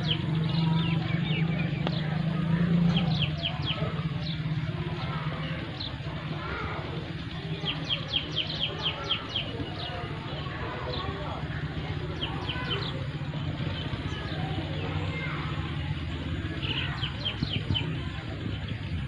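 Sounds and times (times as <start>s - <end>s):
low engine hum: 0.0s - 19.0s
songbirds chirping: 0.0s - 19.0s.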